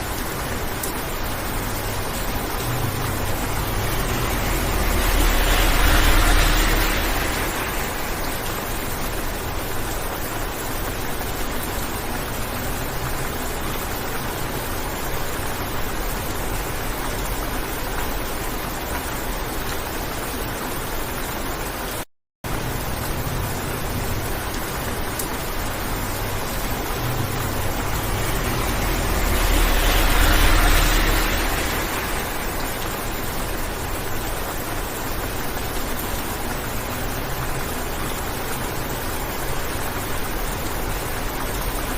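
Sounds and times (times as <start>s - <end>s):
rain on car windshield: 0.0s - 41.9s
road noise: 0.0s - 41.9s.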